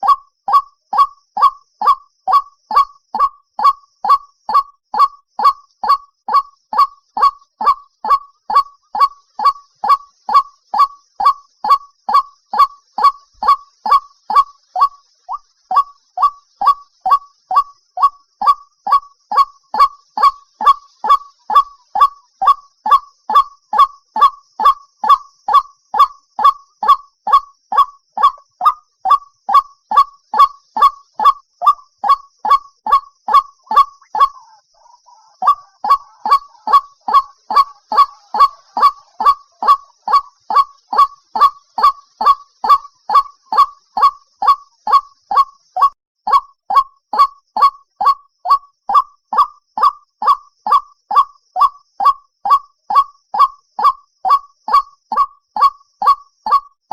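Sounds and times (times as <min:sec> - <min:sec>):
waterhen calling: 0:00.0 - 0:23.9, 0:24.6 - 0:56.6
faint low bird call: 0:00.0 - 0:56.7.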